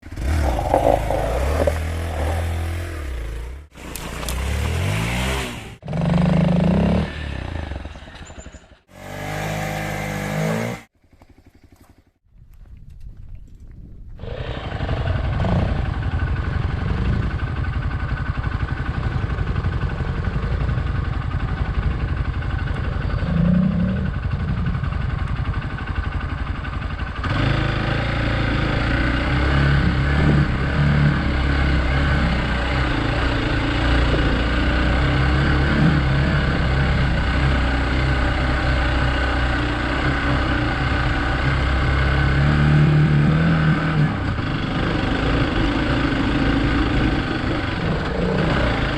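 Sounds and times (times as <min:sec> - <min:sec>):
motorcycle engine running: 0:00.0 - 0:13.2, 0:14.4 - 0:48.9.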